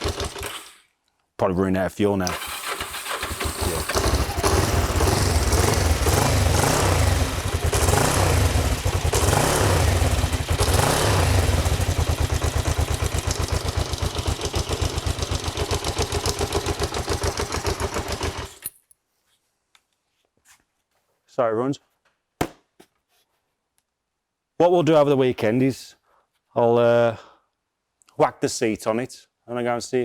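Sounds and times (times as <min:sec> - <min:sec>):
motorcycle engine revving: 0:00.0 - 0:00.6, 0:02.3 - 0:18.6.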